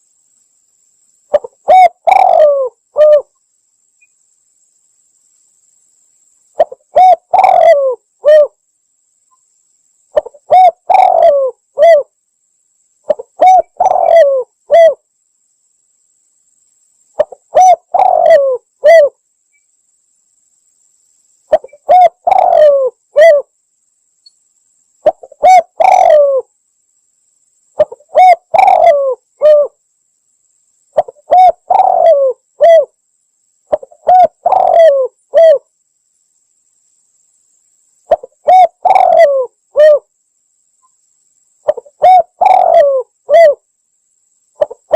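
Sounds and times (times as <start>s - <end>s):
dove cooing: 1.3s - 3.3s, 6.6s - 8.6s, 10.2s - 12.1s, 13.1s - 15.0s, 17.2s - 19.2s, 21.5s - 23.5s, 25.0s - 26.5s, 27.8s - 29.8s, 31.0s - 32.9s, 33.7s - 35.6s, 38.1s - 40.1s, 41.6s - 43.6s, 44.6s - 44.9s.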